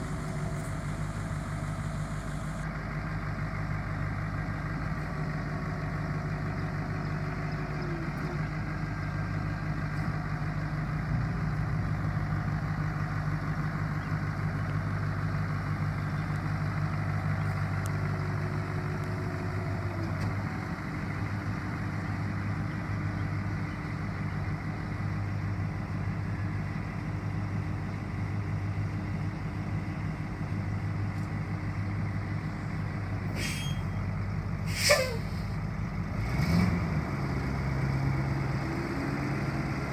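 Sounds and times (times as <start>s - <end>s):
truck engine idling: 0.0s - 39.9s
sharp falling hiss: 34.7s - 35.5s.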